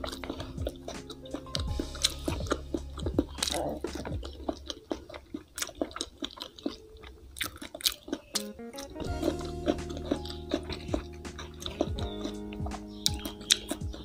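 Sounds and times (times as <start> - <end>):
background music with held tones: 0.0 - 4.7, 8.2 - 14.0
chewing crunchy food: 0.0 - 14.0
mouth clicks: 0.0 - 14.0.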